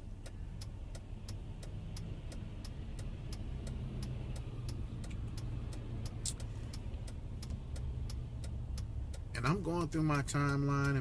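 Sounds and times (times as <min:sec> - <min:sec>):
car rumble inside cabin: 0:00.0 - 0:11.0
faint even ticking: 0:00.0 - 0:11.0.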